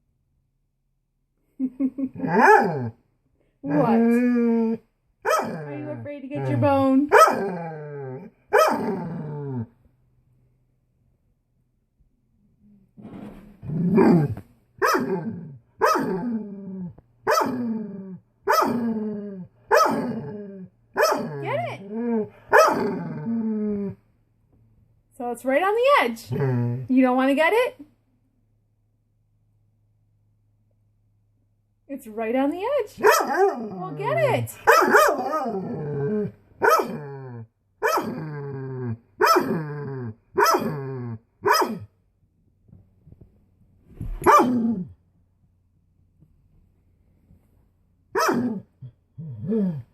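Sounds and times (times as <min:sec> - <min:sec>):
dog barking: 0:02.4 - 0:02.8, 0:05.2 - 0:05.7, 0:07.1 - 0:07.5, 0:08.5 - 0:08.9, 0:14.8 - 0:15.2, 0:15.8 - 0:16.2, 0:17.3 - 0:17.6, 0:18.5 - 0:18.8, 0:19.7 - 0:20.1, 0:21.0 - 0:21.4, 0:22.5 - 0:22.9, 0:33.0 - 0:33.7, 0:34.6 - 0:35.5, 0:36.6 - 0:37.0, 0:37.8 - 0:38.2, 0:39.2 - 0:39.5, 0:40.4 - 0:40.7, 0:41.4 - 0:41.9, 0:44.2 - 0:44.6, 0:48.1 - 0:48.6.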